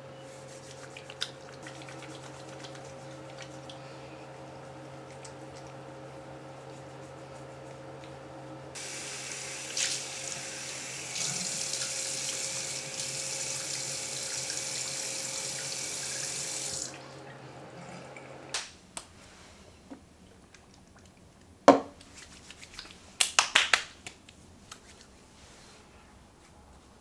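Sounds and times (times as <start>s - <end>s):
low electrical hum: 0.0s - 27.0s
tap water running into sink: 8.8s - 17.2s.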